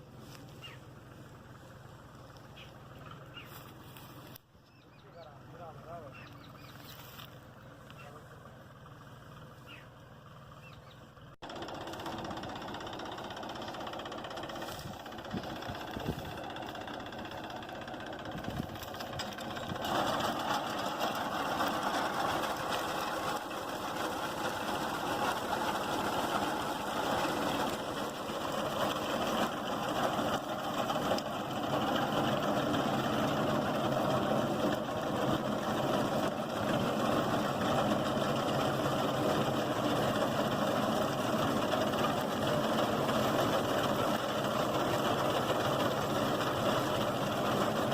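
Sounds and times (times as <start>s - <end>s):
tractor diesel engine running: 0.0s - 47.9s
reaper binder cutting wheat: 11.4s - 47.9s.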